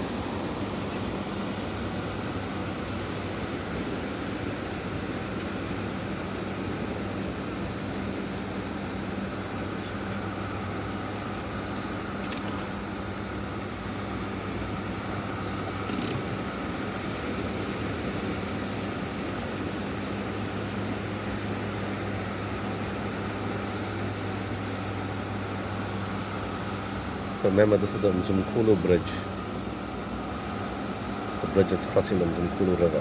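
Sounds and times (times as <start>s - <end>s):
low engine hum: 0.0s - 33.0s
noisy wash: 0.0s - 33.0s
high jingling clicks: 12.2s - 13.1s, 15.8s - 16.2s.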